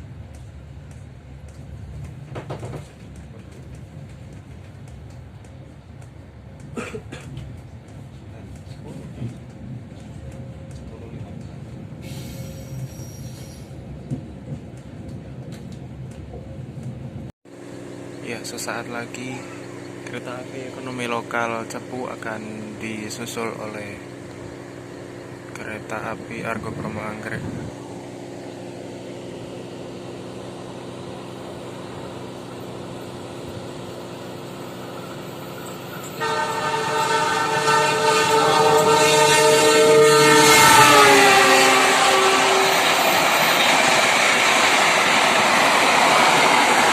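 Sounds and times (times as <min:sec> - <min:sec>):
train rumble with knocks: 0:00.0 - 0:17.3, 0:18.8 - 0:27.8, 0:30.7 - 0:46.9
hiss: 0:12.0 - 0:13.8
train horn chord: 0:36.1 - 0:43.1.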